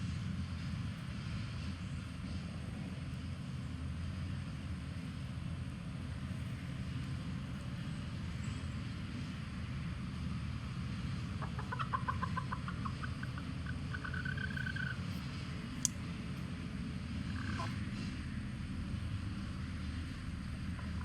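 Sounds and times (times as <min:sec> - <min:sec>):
low wind rumble: 0:00.0 - 0:21.0
chicken alarm cackle: 0:11.2 - 0:15.1, 0:17.2 - 0:17.8, 0:20.7 - 0:21.0.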